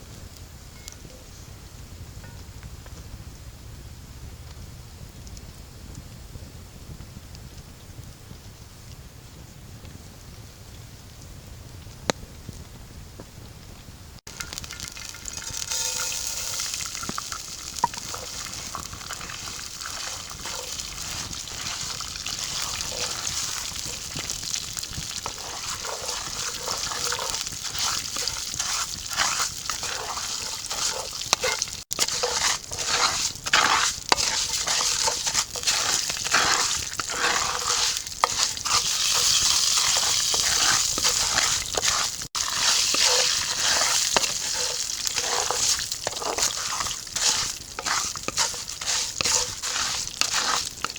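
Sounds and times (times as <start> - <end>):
food sizzling in hot oil: 14.3 - 50.9
stirring clicks and scrapes: 14.3 - 50.9.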